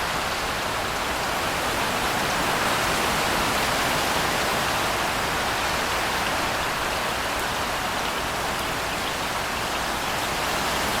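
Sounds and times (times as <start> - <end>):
steady rain hiss: 0.0 - 11.0.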